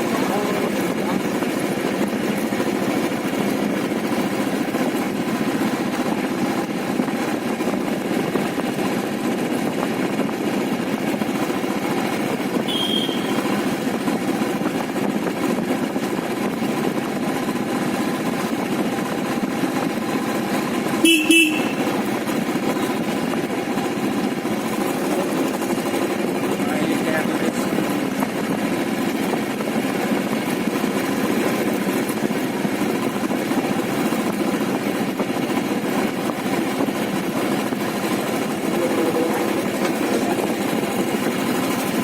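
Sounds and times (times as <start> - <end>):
motorcycle engine and road noise: 0.0 - 42.0
vehicle horn honks: 12.6 - 13.6, 21.0 - 22.0.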